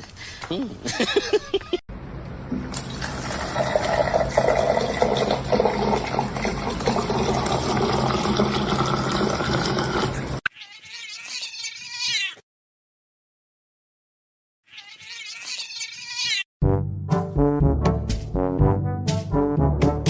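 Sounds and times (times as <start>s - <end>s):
cat yowling and meowing: 10.5s - 12.4s, 14.7s - 16.4s.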